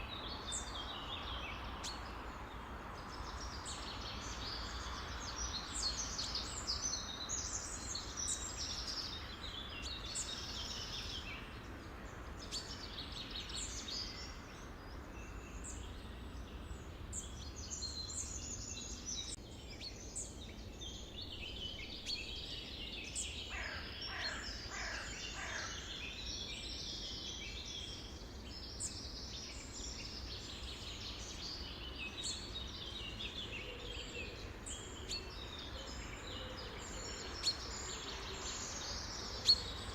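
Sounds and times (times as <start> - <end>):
low background noise: 0.0 - 39.9
birds chirping and calling: 20.1 - 39.9.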